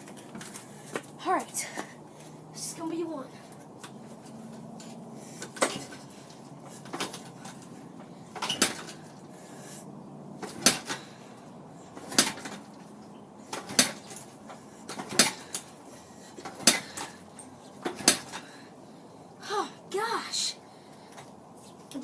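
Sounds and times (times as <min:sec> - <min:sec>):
motorcycle kickstarter clanking: 0:05.4 - 0:06.1, 0:08.4 - 0:09.0, 0:10.4 - 0:11.1, 0:12.0 - 0:12.8, 0:13.5 - 0:14.3, 0:14.9 - 0:15.7, 0:16.4 - 0:17.2, 0:17.8 - 0:18.5.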